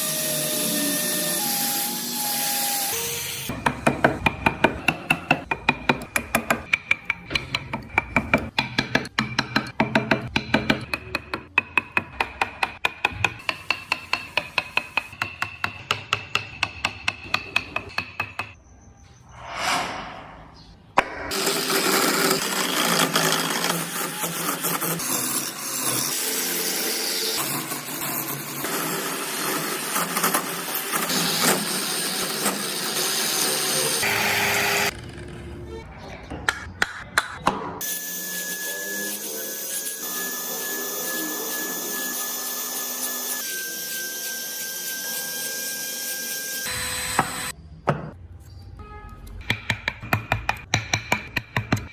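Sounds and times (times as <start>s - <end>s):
short whoosh: 19.3s - 21.3s.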